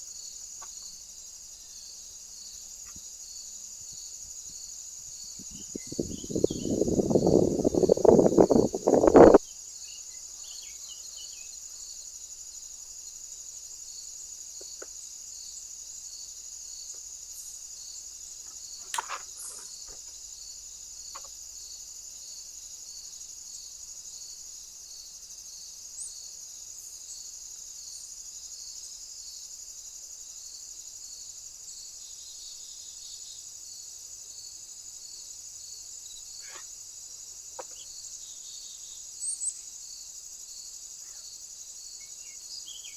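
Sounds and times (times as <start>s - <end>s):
insects chirping: 0.0s - 42.9s
loud noisy rush: 5.9s - 9.4s.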